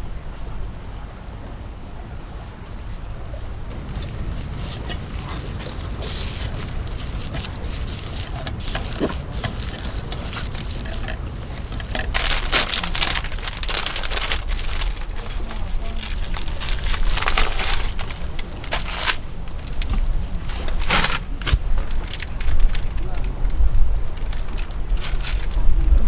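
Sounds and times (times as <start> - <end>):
crackling rustling gusts: 0.0 - 26.0
strong wind on microphone: 0.0 - 26.0.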